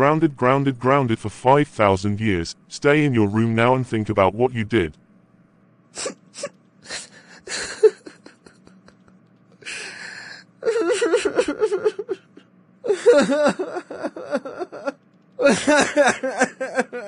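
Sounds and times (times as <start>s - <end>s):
person crying and sobbing: 6.0s - 17.0s.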